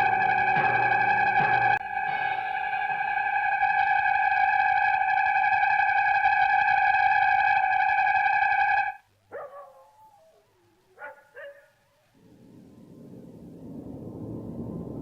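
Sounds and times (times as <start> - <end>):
eerie synthesizer tone: 0.0 - 9.0
gliding warbling electronic sounds: 0.0 - 9.0
low rumble: 12.2 - 15.0.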